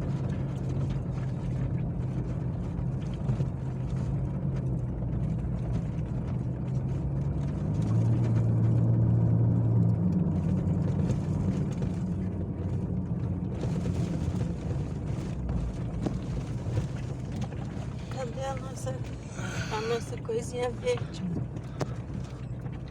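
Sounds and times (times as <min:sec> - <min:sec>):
vehicle engine humming: 0:00.0 - 0:22.9.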